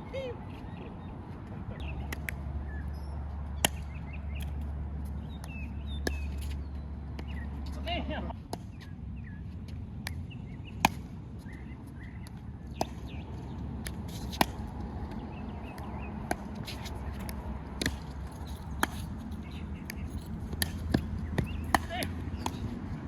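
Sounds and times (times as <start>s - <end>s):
paddles striking pickleball: 3.5s - 7.8s, 12.2s - 13.2s, 13.8s - 23.0s.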